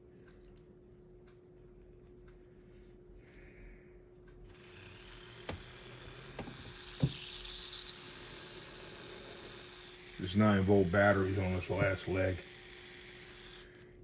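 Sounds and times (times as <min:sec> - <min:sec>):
small motor high-pitched buzz: 0:04.5 - 0:14.0.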